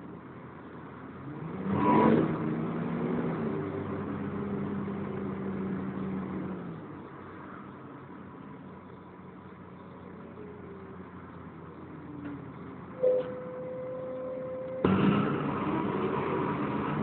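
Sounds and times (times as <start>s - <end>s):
bus diesel engine: 0.0s - 17.0s
sudden loud burst: 14.8s - 15.8s.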